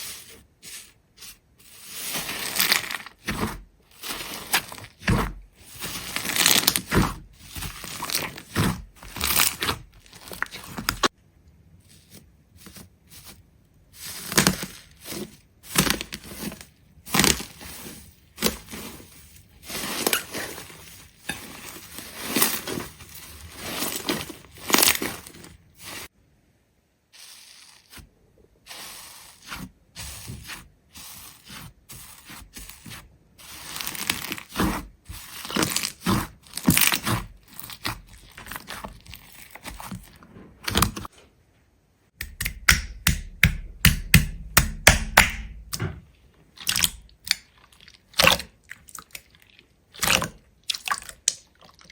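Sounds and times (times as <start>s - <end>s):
crisp cracking and crunching: 1.7s - 11.2s, 14.0s - 26.1s, 32.7s - 41.1s.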